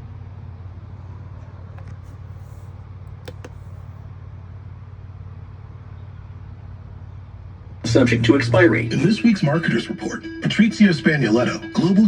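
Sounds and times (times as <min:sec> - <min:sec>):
low mechanical hum: 0:00.0 - 0:09.8
faint clicks: 0:03.1 - 0:03.7.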